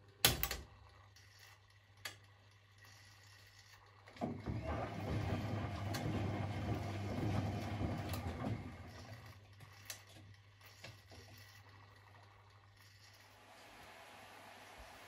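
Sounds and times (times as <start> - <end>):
washing machine motor humming: 3.0 - 15.0.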